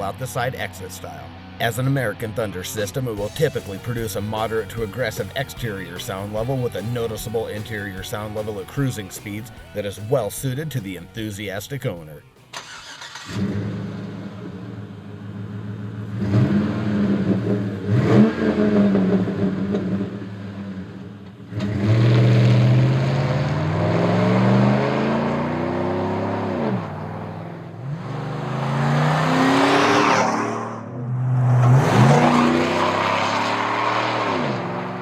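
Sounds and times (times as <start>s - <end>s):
car engine idling and revving: 12.5s - 35.0s.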